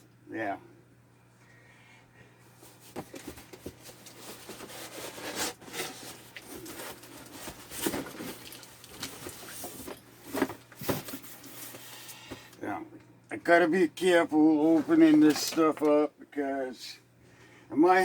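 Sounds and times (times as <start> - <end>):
packaging rustling and crinkling: 2.6 - 12.2.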